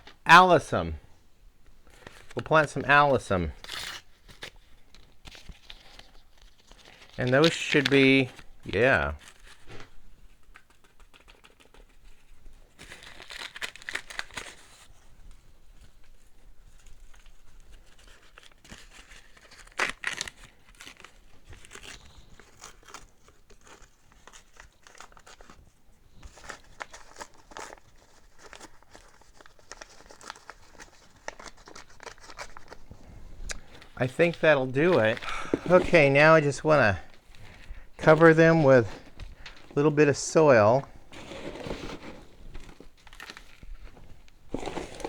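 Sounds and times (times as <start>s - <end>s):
seed packets crinkling: 6.4s - 9.6s, 26.3s - 45.0s.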